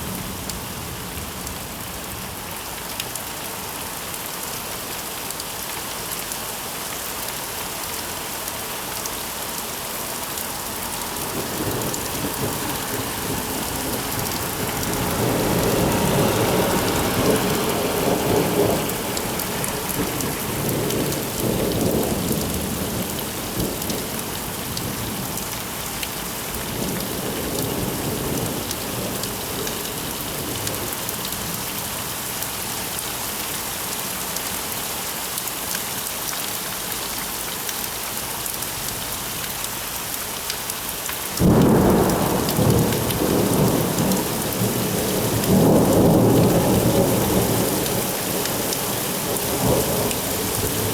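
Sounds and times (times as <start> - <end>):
steady rain: 0.0 - 50.9
rolling thunder: 11.2 - 23.9, 41.4 - 50.9.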